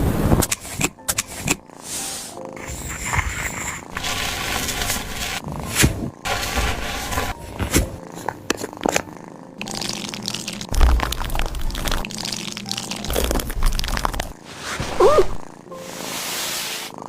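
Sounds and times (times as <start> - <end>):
nail clippers clicking: 0.4 - 1.6
crinkly handling noise: 6.2 - 9.9
low thumps: 10.8 - 11.8.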